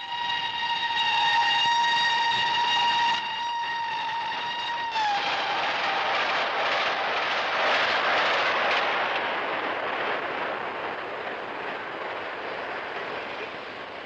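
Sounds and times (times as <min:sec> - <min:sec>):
steam locomotive whistle: 0:00.0 - 0:06.0
train rushing past: 0:00.0 - 0:14.0.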